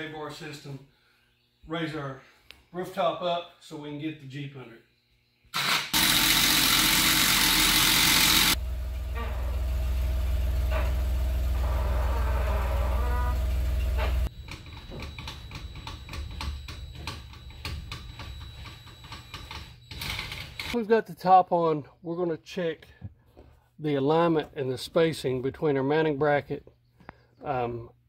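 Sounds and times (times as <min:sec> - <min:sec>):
car engine running: 0:06.0 - 0:14.4.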